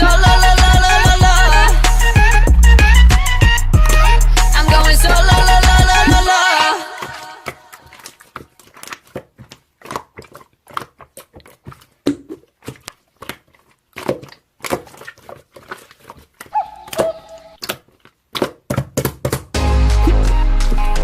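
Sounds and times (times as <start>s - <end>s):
slime squeezed by hand: 7.0s - 18.7s.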